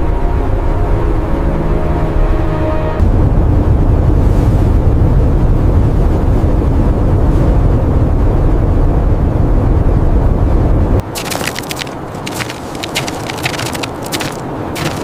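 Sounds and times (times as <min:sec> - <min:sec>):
blizzard wind rumbling: 0:00.0 - 0:15.0
rapid crackling: 0:11.0 - 0:15.0.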